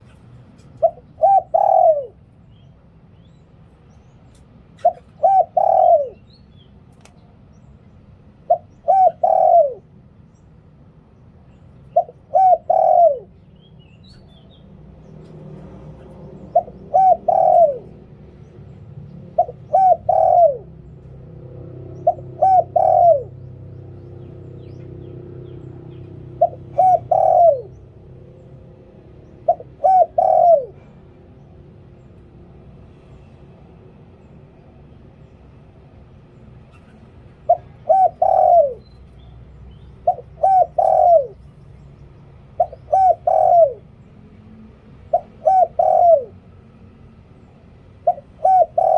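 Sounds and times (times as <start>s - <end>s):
dove cooing: 0.0s - 2.4s, 4.8s - 6.3s, 8.4s - 10.0s, 11.8s - 18.4s, 19.1s - 31.5s, 36.6s - 41.8s, 42.4s - 44.1s, 45.0s - 47.0s, 47.7s - 48.9s.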